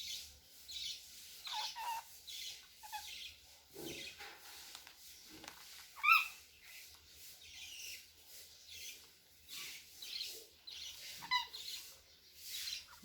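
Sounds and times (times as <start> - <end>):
cockatiel chirping: 0.1 - 3.4, 6.0 - 6.4, 9.6 - 13.0
scratchy rustling: 0.2 - 13.0.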